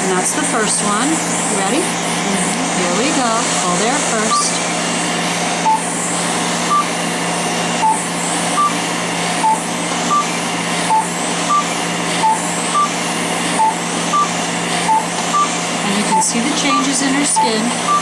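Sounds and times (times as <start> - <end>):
cooling hose air rush: 0.0 - 18.0
laser handpiece beeping: 2.4 - 4.8, 5.6 - 6.0, 6.6 - 7.0, 7.8 - 18.0.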